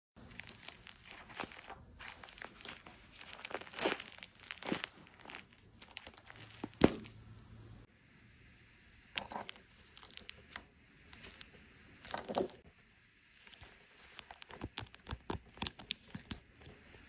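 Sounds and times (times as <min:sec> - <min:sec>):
crinkling rustling: 0:00.2 - 0:07.3.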